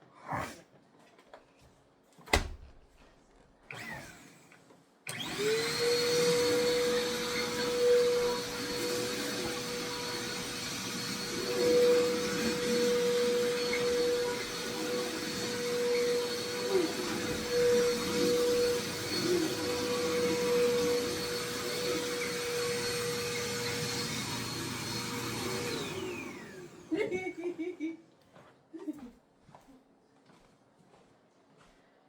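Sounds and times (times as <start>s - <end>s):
vacuum cleaner running: 3.7s - 27.9s.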